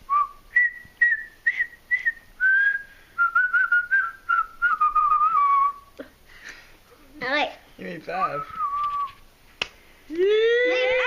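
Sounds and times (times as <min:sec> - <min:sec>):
person whistling a tune: 0:00.1 - 0:05.9, 0:08.3 - 0:09.2.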